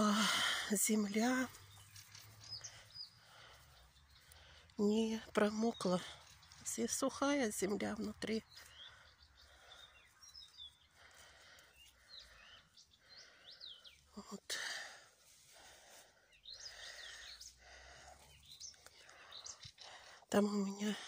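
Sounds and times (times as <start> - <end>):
soft rustling: 1.2 - 4.8, 14.9 - 19.8.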